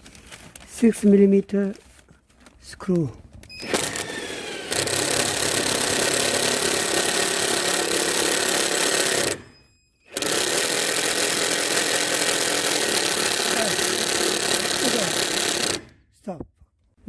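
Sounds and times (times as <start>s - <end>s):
electric drill driving screw: 3.5s - 16.0s.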